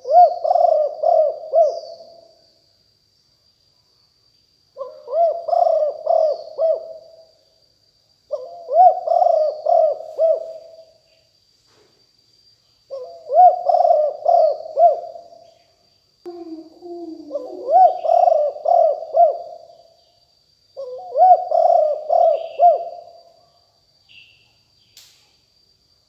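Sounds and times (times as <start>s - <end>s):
lower-pitched coo: 0.0s - 2.1s, 4.8s - 7.1s, 8.4s - 10.9s, 12.9s - 15.2s, 16.3s - 19.6s, 20.8s - 23.0s
dove cooing: 0.0s - 2.2s, 4.8s - 7.2s, 8.3s - 10.9s, 12.9s - 15.3s, 16.3s - 19.7s, 20.8s - 23.1s.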